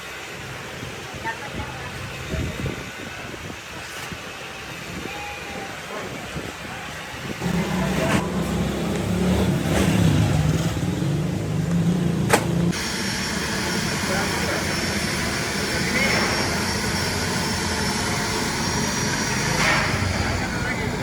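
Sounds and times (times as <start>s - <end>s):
engine running loudly: 7.4s - 21.0s.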